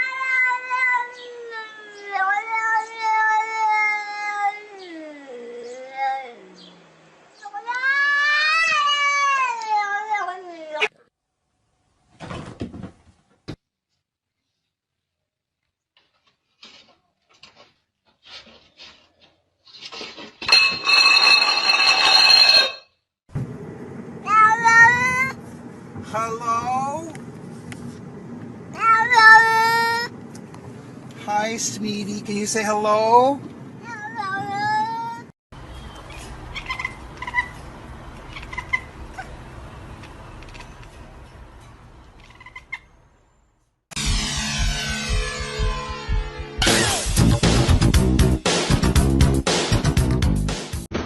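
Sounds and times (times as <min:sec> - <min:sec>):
cat yowling: 0:00.0 - 0:06.7, 0:07.4 - 0:10.9, 0:24.3 - 0:25.4, 0:28.7 - 0:30.1.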